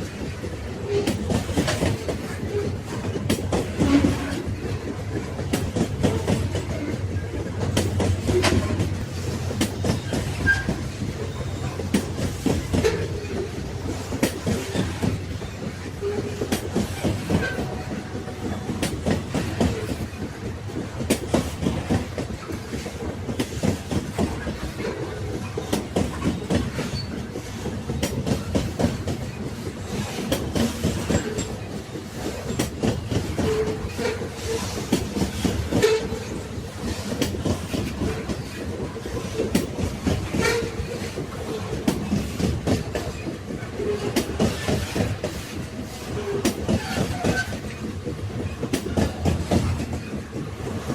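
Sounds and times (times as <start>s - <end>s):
railway carriages rumbling on track: 0.0s - 50.9s
wheels clicking over rails: 0.0s - 50.9s.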